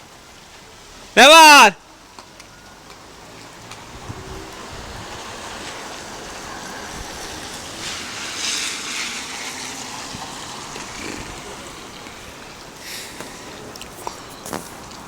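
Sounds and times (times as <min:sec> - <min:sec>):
wind blowing: 0:03.8 - 0:15.0.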